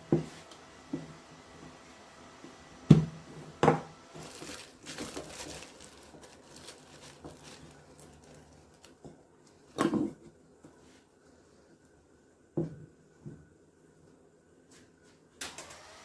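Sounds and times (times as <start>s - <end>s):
crinkling rustle: 4.2s - 9.8s.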